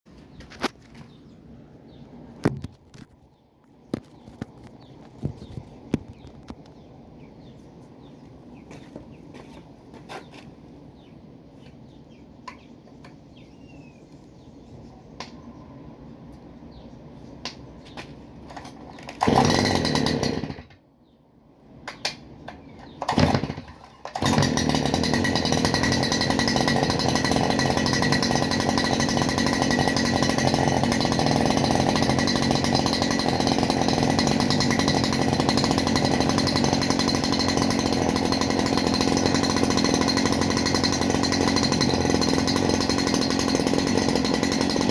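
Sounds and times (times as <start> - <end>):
brushcutter engine starting: 18.5 - 20.8, 22.8 - 44.9.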